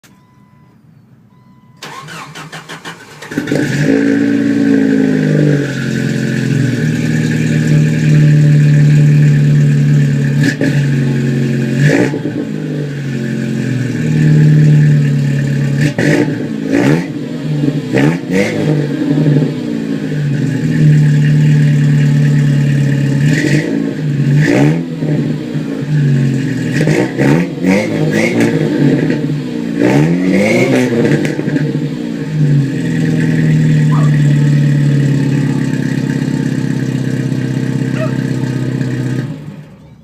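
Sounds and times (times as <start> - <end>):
car engine idling and revving: 0.0 - 40.0
starter motor cranking: 1.8 - 3.4.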